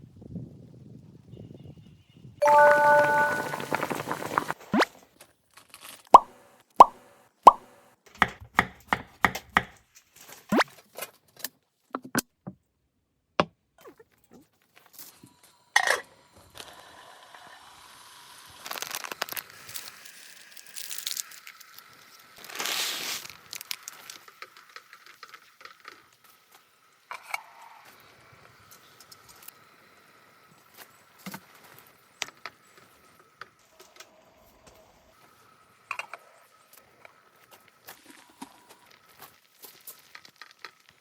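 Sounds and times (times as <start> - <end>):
rustling and crinkling: 37.5 - 41.0.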